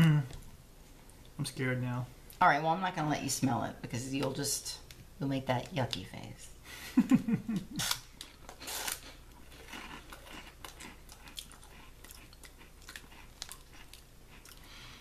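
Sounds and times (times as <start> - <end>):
crunchy chewing of a snack: 7.8 - 15.0.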